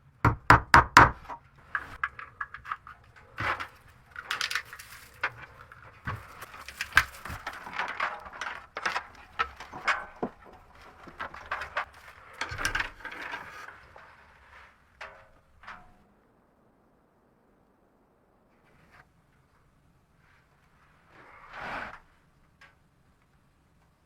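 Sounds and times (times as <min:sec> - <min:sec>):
sharp knocks: 0:00.2 - 0:02.0
short rustles: 0:01.7 - 0:15.2.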